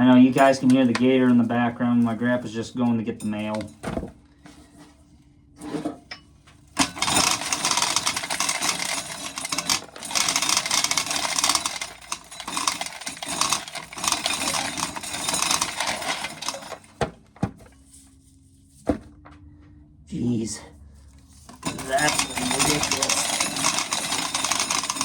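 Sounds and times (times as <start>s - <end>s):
corn kernels rattling into container: 21.6s - 25.0s.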